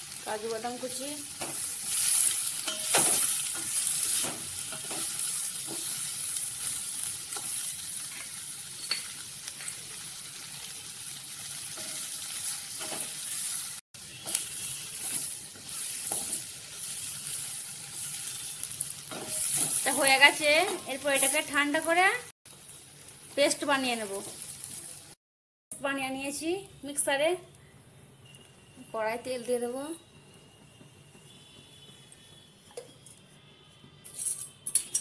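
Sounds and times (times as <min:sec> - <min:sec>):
vegetables sizzling in hot oil: 0:00.0 - 0:25.2.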